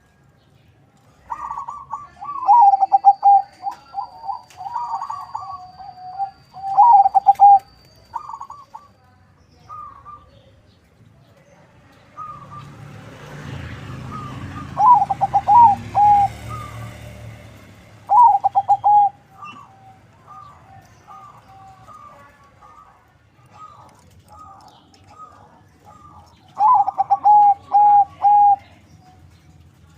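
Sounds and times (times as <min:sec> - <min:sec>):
dove cooing: 0:01.2 - 0:08.9, 0:14.1 - 0:17.2, 0:18.0 - 0:28.8.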